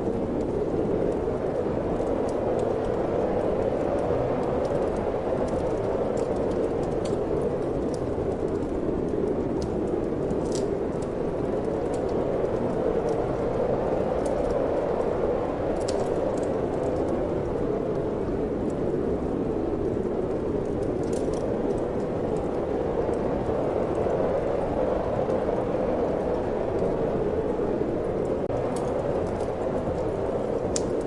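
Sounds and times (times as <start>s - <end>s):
steady wind: 0.0s - 31.0s
wood fire crackling: 0.0s - 31.0s.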